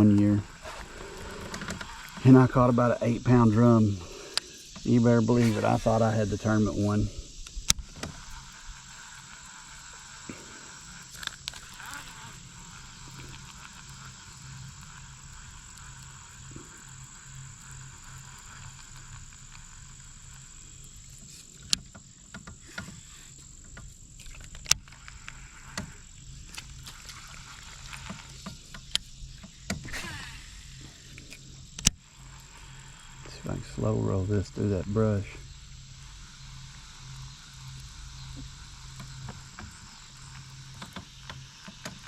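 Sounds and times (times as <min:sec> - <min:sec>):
frogs and insects calling: 0:00.0 - 0:42.0
thin high insect tone: 0:00.0 - 0:42.0
sharp clicks and knocks: 0:21.2 - 0:23.0, 0:31.2 - 0:32.0.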